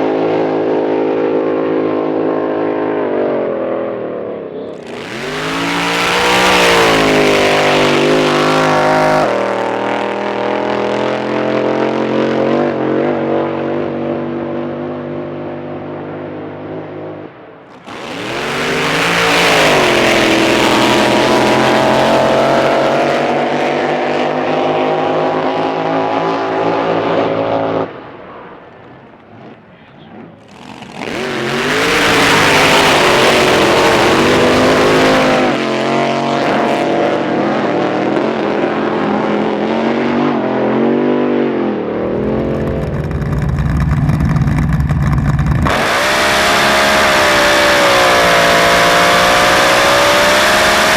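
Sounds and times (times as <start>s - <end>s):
racing boat engine at full throttle: 0.0s - 27.8s, 30.3s - 50.9s
low engine rumble: 41.9s - 45.7s.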